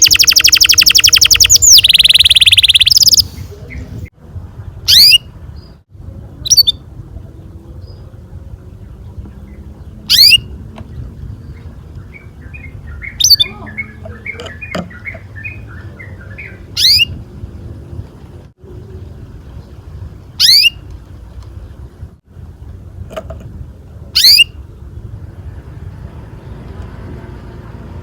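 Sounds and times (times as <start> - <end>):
canary twittering: 0.0 - 3.4, 4.9 - 5.2, 6.5 - 6.8, 10.1 - 10.4, 12.1 - 17.2, 24.2 - 24.5
canary chirps: 0.0 - 4.0, 4.9 - 5.8, 6.4 - 6.8, 9.5 - 10.5, 11.4 - 17.2, 20.4 - 20.8, 24.2 - 24.6.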